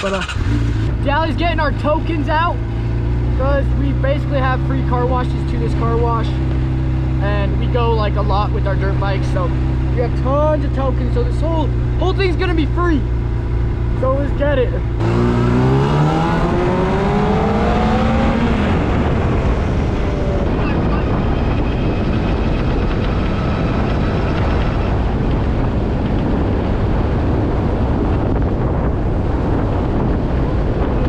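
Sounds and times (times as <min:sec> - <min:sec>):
sport bike engine accelerating: 0:00.0 - 0:28.1
wind noise on microphone: 0:15.0 - 0:31.0.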